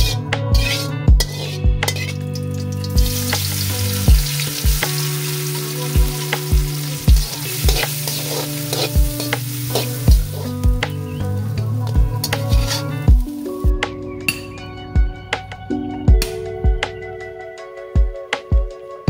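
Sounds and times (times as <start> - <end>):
spatula scraping metal wok: 0.0 - 13.5
onion sizzling in oil: 0.6 - 13.7.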